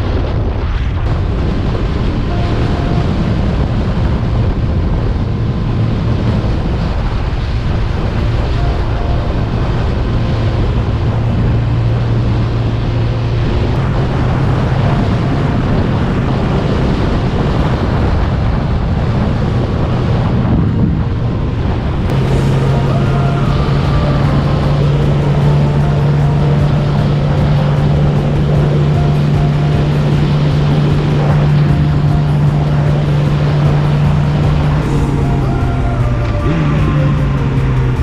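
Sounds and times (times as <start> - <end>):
wind buffeting microphone: 0.0 - 38.0
motorcycle engine running: 21.8 - 38.0.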